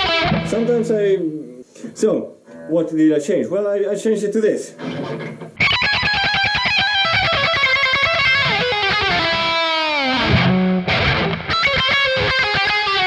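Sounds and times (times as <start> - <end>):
electric guitar lick: 0.0 - 1.9, 4.8 - 13.0.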